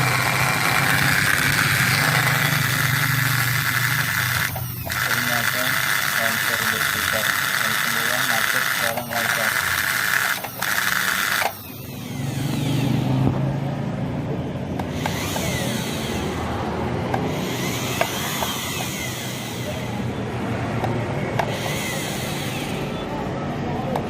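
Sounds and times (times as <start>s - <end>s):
sewing machine motor running: 0.0s - 13.1s, 14.9s - 16.5s, 17.2s - 20.0s, 21.4s - 23.0s.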